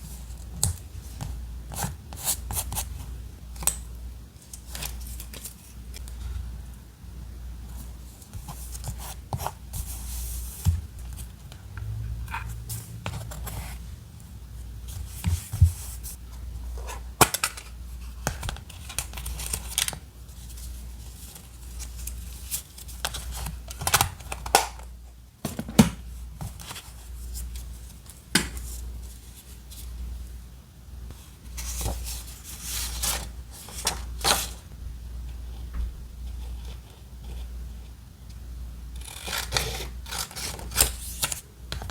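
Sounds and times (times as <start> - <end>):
steady low hum: 0.0 - 41.9
scissors snipping paper: 39.0 - 41.9.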